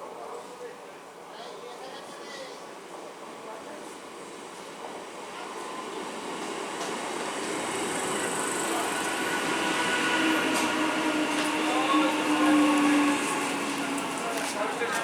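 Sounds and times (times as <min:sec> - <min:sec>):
electric train running on track: 0:04.0 - 0:15.0.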